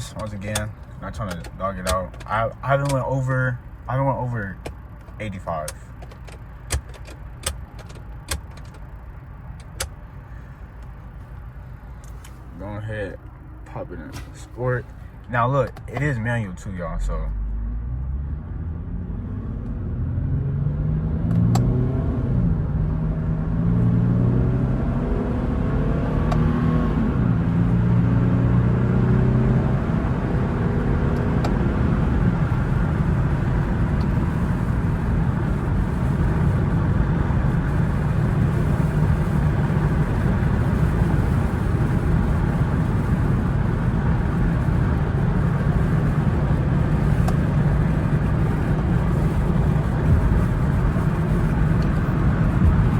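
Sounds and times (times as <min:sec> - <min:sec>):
car engine accelerating: 0:00.0 - 0:52.9
road noise: 0:00.0 - 0:52.9.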